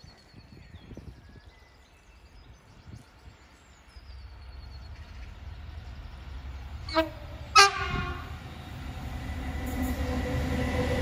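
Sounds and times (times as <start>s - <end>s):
small birds singing: 0.0s - 6.9s
low rumbling gusts: 2.4s - 11.0s
train rumble: 2.6s - 11.0s.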